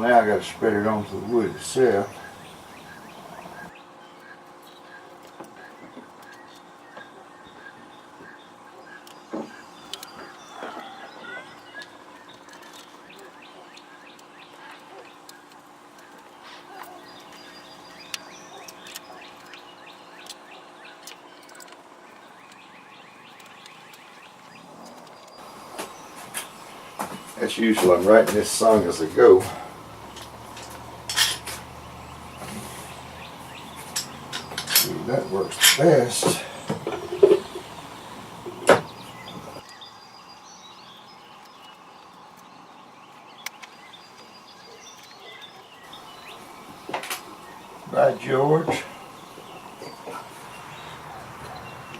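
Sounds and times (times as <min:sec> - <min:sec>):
faint steady hiss: 0:00.0 - 0:03.8, 0:15.5 - 0:51.9
steady low hum: 0:00.0 - 0:44.7
birds chirping: 0:00.0 - 0:51.9.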